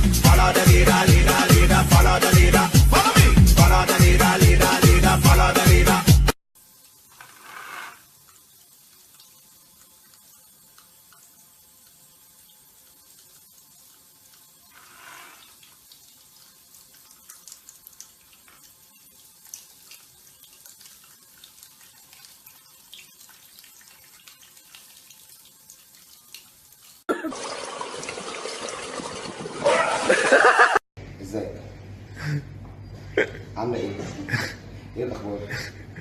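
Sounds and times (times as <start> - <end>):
steady rush of running water: 27.2 - 30.6.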